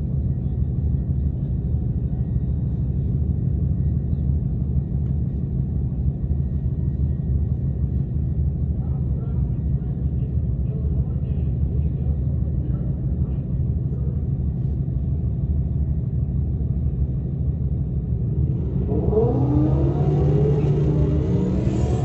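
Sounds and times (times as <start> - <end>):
car engine rumbling: 14.0 - 22.0
rising engine whine: 15.3 - 22.0.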